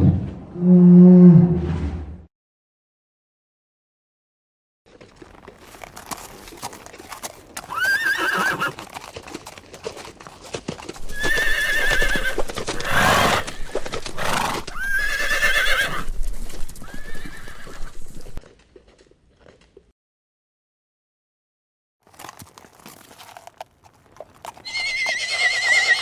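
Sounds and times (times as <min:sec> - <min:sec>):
horse whinnying: 0:05.6 - 0:09.1, 0:11.0 - 0:16.1, 0:16.8 - 0:18.2, 0:24.4 - 0:26.0.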